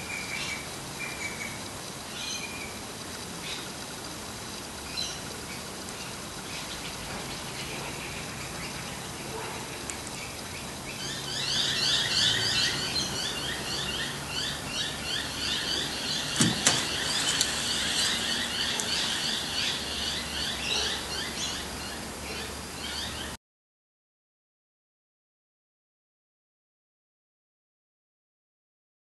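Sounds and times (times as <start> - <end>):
small birds chirping: 4.8 - 23.4.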